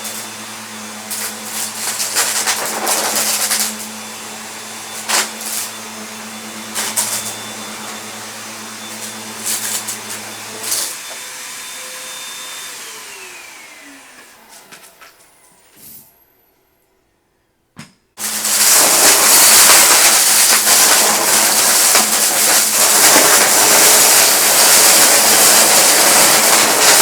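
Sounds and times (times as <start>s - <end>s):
debris rattling in vacuum: 0.0s - 11.6s, 18.2s - 27.0s
vacuum cleaner running: 0.0s - 16.2s, 18.2s - 27.0s.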